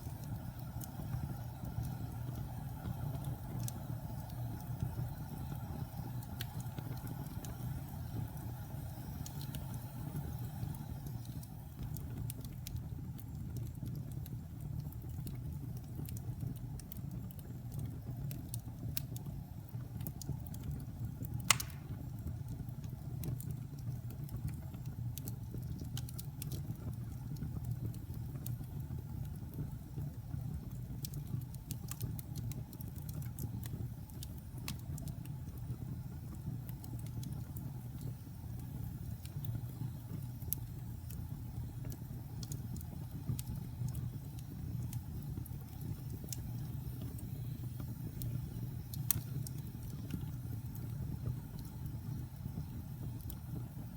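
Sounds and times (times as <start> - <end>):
fire crackling: 0.0 - 53.9
fire flames rumbling: 0.0 - 53.9
fire loud pop: 21.5 - 22.0.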